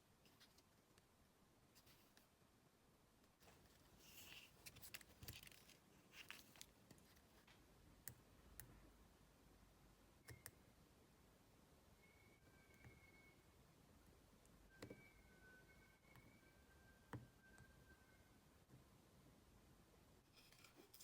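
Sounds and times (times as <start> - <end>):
small hard parts scraping: 20.3 - 21.0.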